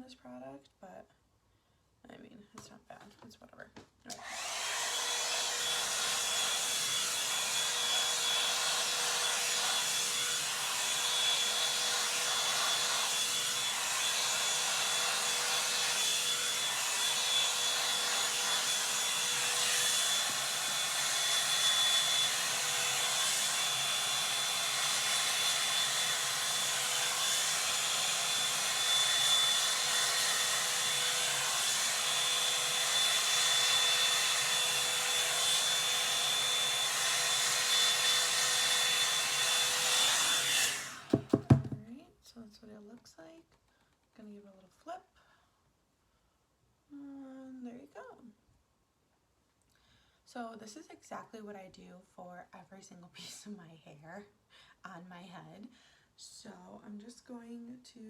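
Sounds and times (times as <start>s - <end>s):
hair dryer brush whining: 4.1s - 41.8s.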